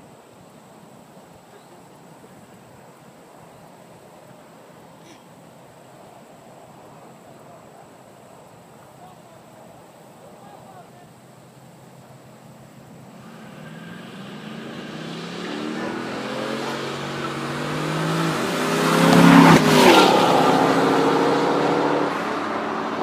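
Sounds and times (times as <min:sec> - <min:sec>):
racing car engines at full throttle: 0:13.1 - 0:23.0.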